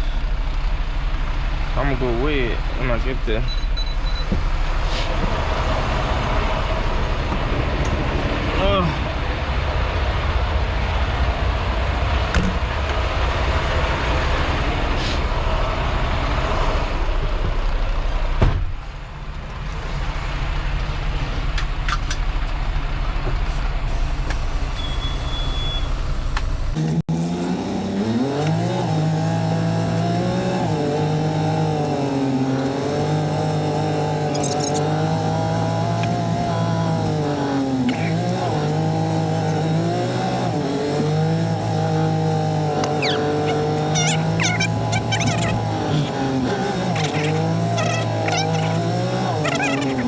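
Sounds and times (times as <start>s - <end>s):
diesel engine accelerating: 0.0s - 18.4s, 19.1s - 50.0s
truck engine and road drone: 0.0s - 50.0s.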